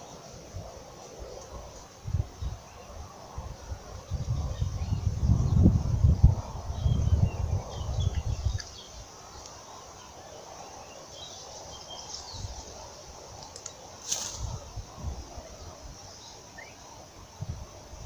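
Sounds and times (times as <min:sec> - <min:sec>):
birds chirping: 0:00.0 - 0:18.0
rural outdoor ambience: 0:00.0 - 0:18.0.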